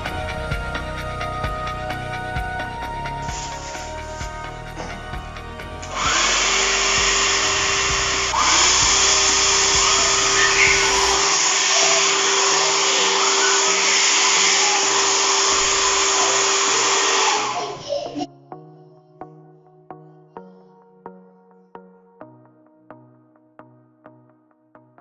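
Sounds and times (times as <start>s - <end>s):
hair dryer running: 5.7s - 18.2s.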